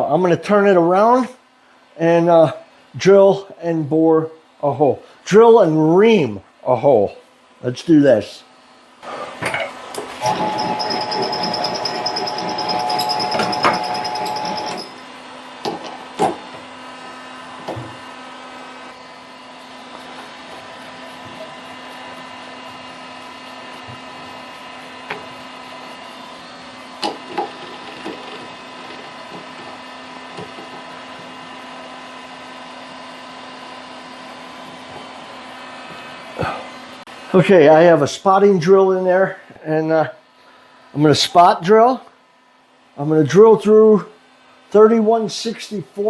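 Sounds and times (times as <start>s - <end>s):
lathe motor whining: 10.2s - 15.1s.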